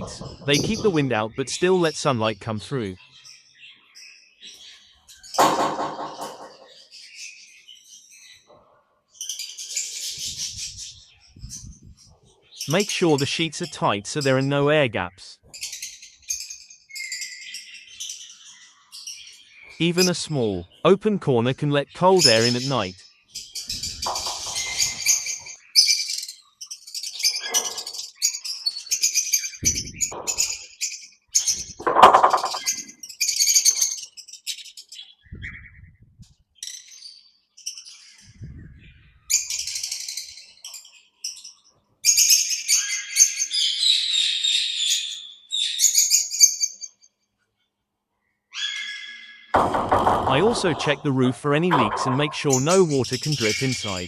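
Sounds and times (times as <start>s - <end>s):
parrots chirping and calling: 0.0s - 1.9s, 23.4s - 35.8s, 48.5s - 54.0s.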